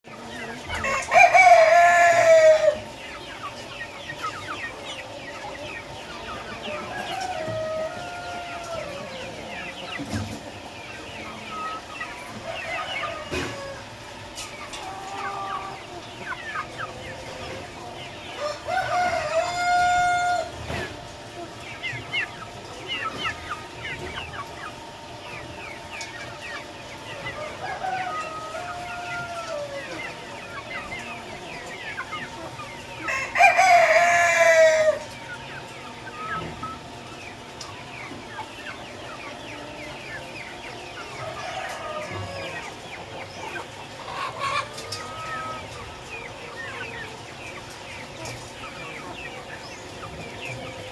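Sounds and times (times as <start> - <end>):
chicks peeping: 0.0 - 50.9.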